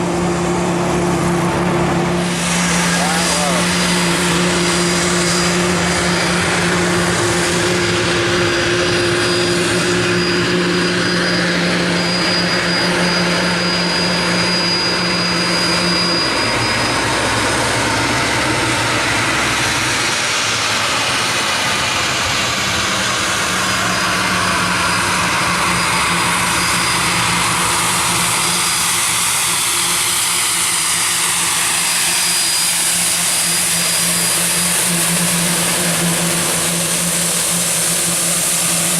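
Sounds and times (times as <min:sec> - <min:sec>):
aircraft engines running: 0:00.0 - 0:38.9
high whine: 0:00.0 - 0:38.9.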